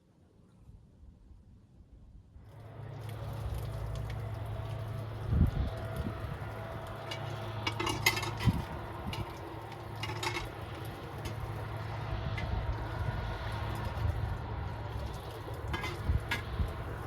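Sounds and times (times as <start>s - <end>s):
steady low hum: 2.2s - 17.0s
cookware clinking: 7.1s - 8.6s.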